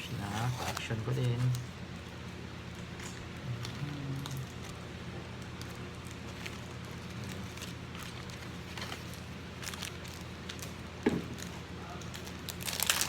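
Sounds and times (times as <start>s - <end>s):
cards and packaging handled: 0.0s - 1.6s, 12.1s - 13.0s
steady low hum: 0.0s - 13.0s.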